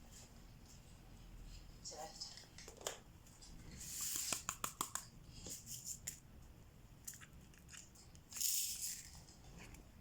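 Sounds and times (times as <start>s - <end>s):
pen clicking and tapping: 4.1s - 5.1s.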